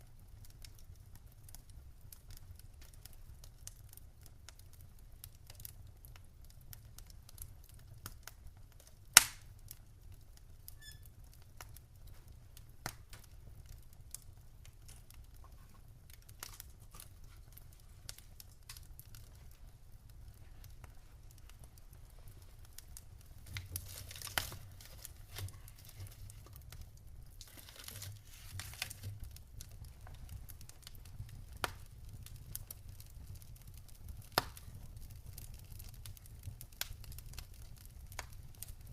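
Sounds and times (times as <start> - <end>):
wood fire crackling: 0.0 - 38.9
loud pop of burning wood: 9.2 - 9.5, 27.3 - 34.7.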